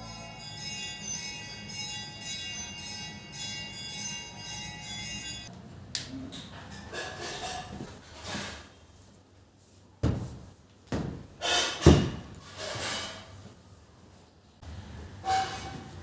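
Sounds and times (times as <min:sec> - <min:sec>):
soft rubbing and scraping: 0:06.9 - 0:10.6.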